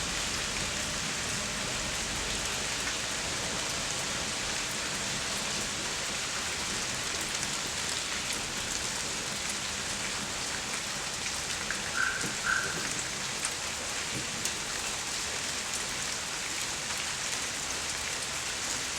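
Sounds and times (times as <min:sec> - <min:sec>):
steady rain falling: 0:00.0 - 0:18.9
water drips: 0:11.8 - 0:13.1.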